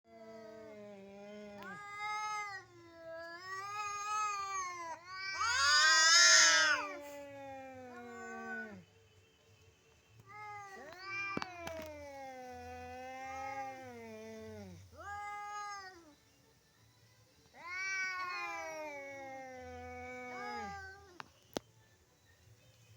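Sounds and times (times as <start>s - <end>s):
cats yowling at each other: 0.1s - 8.8s, 10.3s - 16.1s, 17.6s - 21.2s.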